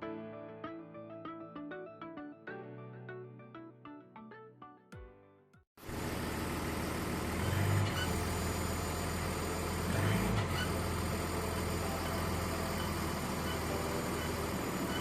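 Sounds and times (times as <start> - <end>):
car engine low drone: 5.8 - 15.0.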